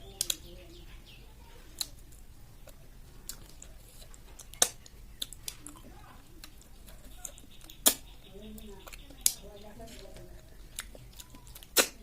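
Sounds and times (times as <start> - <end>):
chewing food: 1.6 - 12.0
mouth clicks: 1.8 - 9.6, 10.2 - 12.0.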